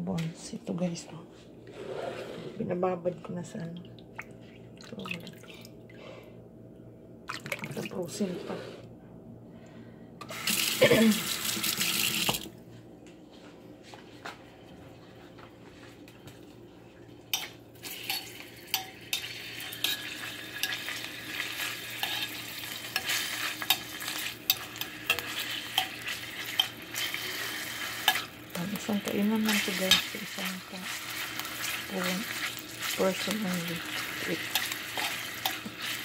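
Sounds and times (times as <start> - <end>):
water running in sink: 10.3 - 12.5, 17.8 - 36.0
pork fat sizzling in pan: 17.8 - 36.0.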